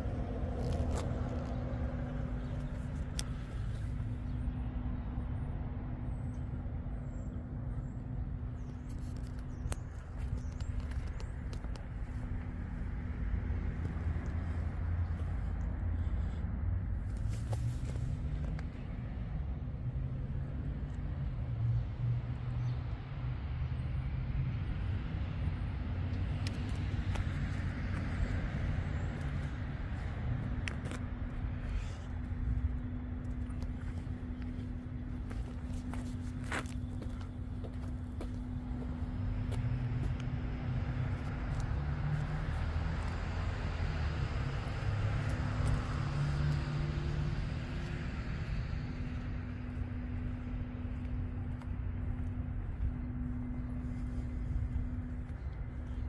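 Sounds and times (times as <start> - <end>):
engine idling with uneven rumble: 0.0 - 21.6, 25.8 - 41.8, 44.2 - 56.0
car engine idling: 27.1 - 40.3, 46.6 - 56.0.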